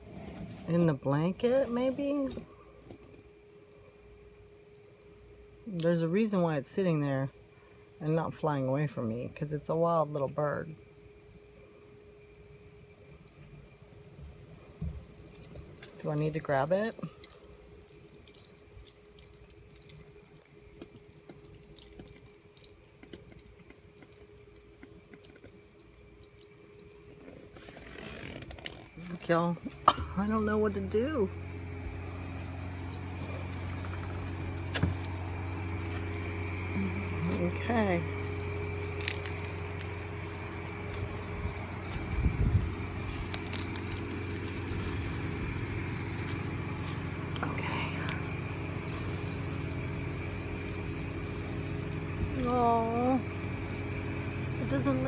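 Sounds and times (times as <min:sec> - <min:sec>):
faint hum: 0:00.0 - 0:55.0
rustling hiss: 0:27.2 - 0:54.8.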